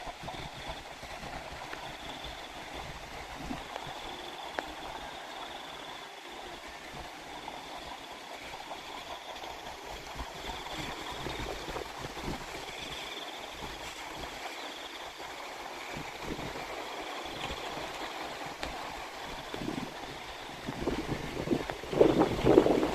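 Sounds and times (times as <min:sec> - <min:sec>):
water running and gurgling: 0:00.0 - 0:22.9
wind rumbling on microphone: 0:00.0 - 0:22.9.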